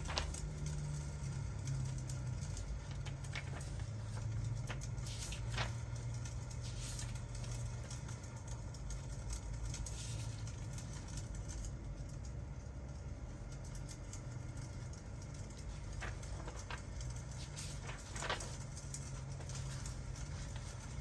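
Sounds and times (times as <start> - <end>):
steady low rumble: 14.8 - 21.0.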